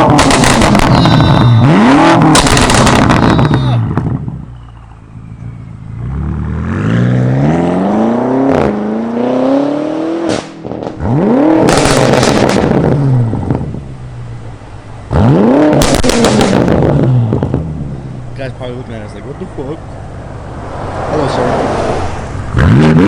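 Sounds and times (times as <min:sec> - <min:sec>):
car engine revving hard: 0:00.0 - 0:04.2, 0:06.0 - 0:13.6, 0:15.1 - 0:17.7, 0:20.7 - 0:23.0.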